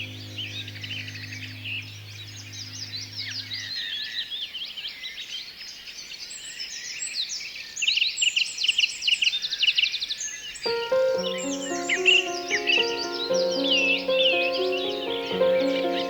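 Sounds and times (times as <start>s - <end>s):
low steady hum: 0.0s - 4.2s
small birds chirping: 0.0s - 16.0s.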